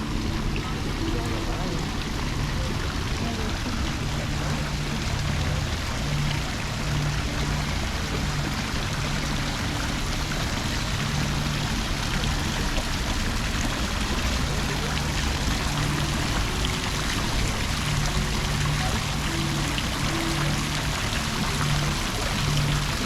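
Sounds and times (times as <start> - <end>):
flowing water rushing: 0.0 - 23.0
low held notes: 0.0 - 23.0.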